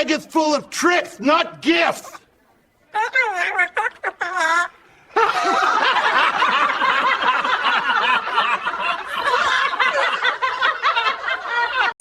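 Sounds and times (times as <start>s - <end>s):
people laughing: 3.4s - 12.0s.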